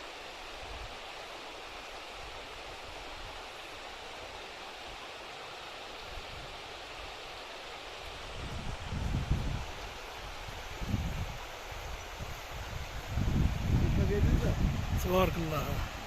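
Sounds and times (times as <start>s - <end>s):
rushing outdoor noise: 0.0s - 16.0s
wind buffeting microphone: 8.2s - 16.0s.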